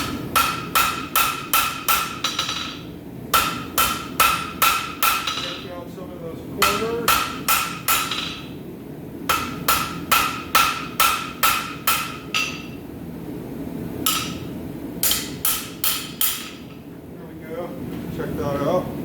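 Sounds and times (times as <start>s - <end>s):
hammer striking steel on anvil: 0.0s - 5.7s, 6.6s - 8.5s, 9.3s - 12.8s, 14.0s - 16.8s.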